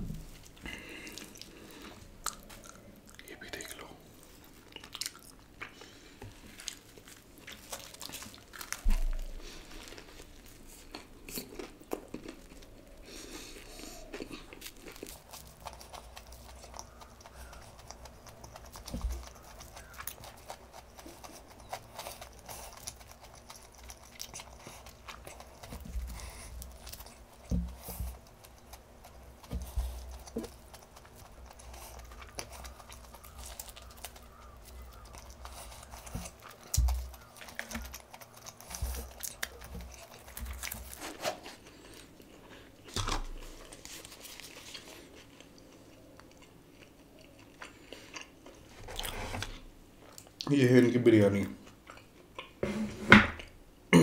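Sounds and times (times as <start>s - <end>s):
low thump: 0.0s - 0.3s
chewing crunchy fried chicken: 0.3s - 50.5s, 51.6s - 52.6s.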